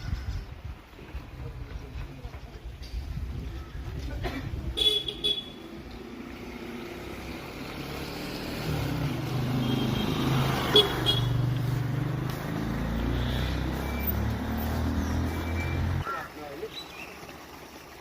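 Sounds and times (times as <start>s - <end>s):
vehicle engine droning: 5.7s - 16.0s.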